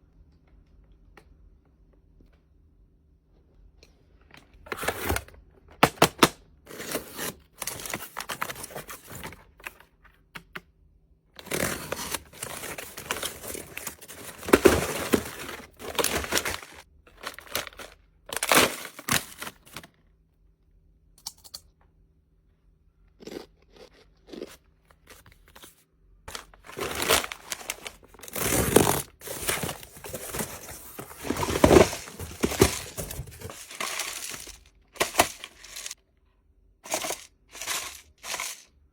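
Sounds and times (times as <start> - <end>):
plastic packaging crinkling: 6.7 - 9.4, 11.4 - 19.9, 26.3 - 36.0, 36.9 - 38.6.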